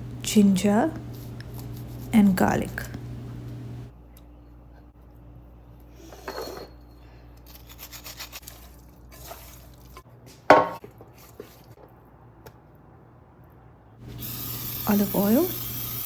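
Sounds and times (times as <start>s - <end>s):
utensils clinking against bowl: 6.1s - 8.6s.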